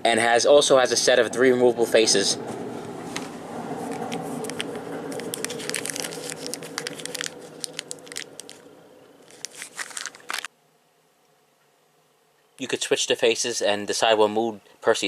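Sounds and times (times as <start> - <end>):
electric motor hum: 2.4 - 10.5.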